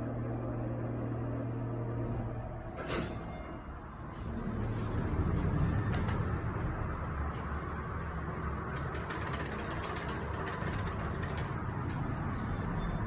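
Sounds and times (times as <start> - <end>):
elevator machinery rumble: 0.0 - 13.0
mechanical ticking and rattling: 5.1 - 6.6, 8.7 - 12.8.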